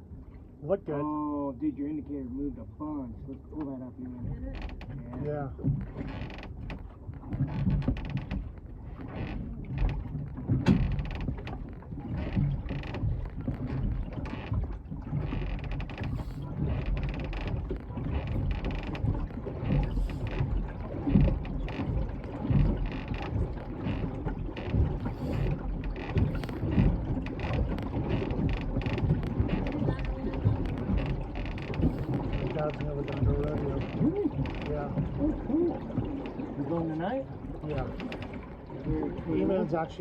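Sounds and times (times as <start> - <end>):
boat knocking and creaking: 0.0 - 40.0
wind on microphone: 8.9 - 36.2.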